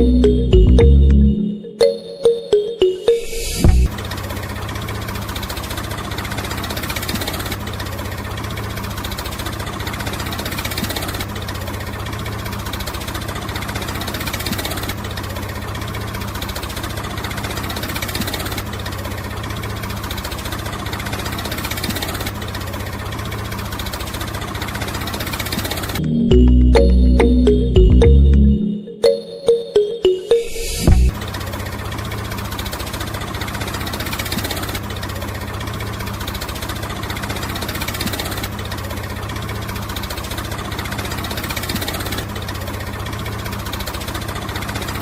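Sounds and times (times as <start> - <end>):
small engine running with rattle: 3.9 - 26.0, 31.2 - 45.0.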